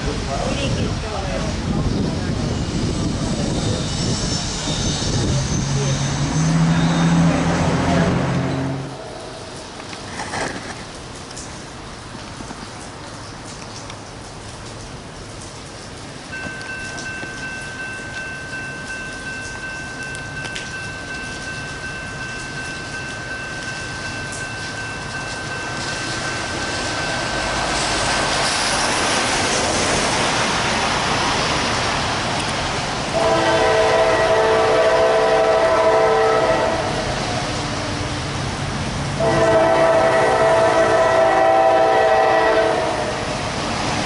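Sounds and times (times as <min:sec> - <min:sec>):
train rail noise: 0:00.0 - 0:44.0
locomotive air horn blasts: 0:33.2 - 0:37.1, 0:39.2 - 0:43.3.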